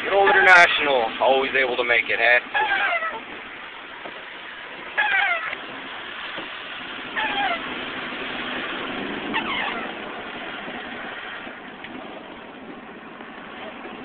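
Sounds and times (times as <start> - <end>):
car road and engine noise: 0.0 - 14.0
short high squeak: 9.4 - 9.9.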